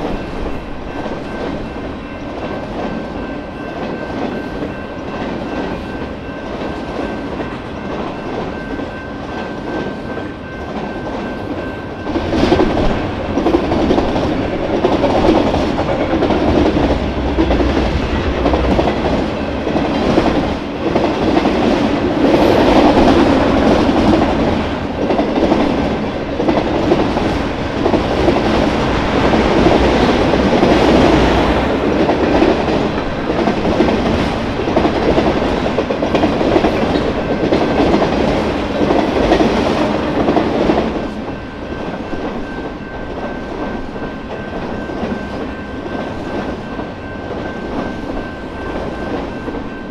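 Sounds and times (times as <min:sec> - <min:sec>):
deep train rumble: 0:00.0 - 0:49.9
train wheels clattering on rails: 0:00.0 - 0:49.9.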